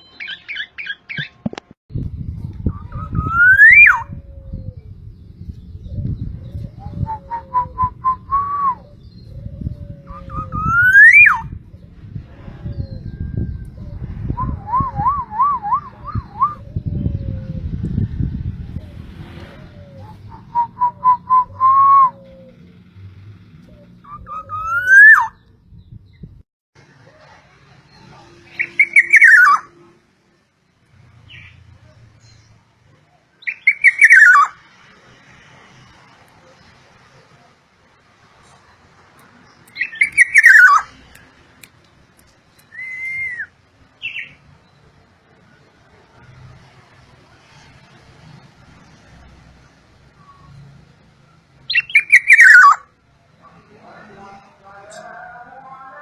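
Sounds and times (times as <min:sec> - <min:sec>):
whistled notes: 0:20.0 - 0:22.3, 0:24.0 - 0:25.3, 0:42.6 - 0:43.5
bird calling: 0:23.6 - 0:25.5, 0:27.9 - 0:29.8, 0:39.6 - 0:41.0, 0:51.7 - 0:52.9.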